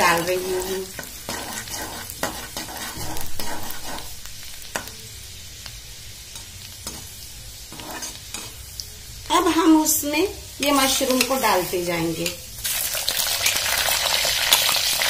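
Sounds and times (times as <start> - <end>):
ginger and garlic sizzling in oil: 0.0 - 15.0
metal spoon scraping pan: 0.9 - 4.9, 7.7 - 8.6, 10.6 - 12.4.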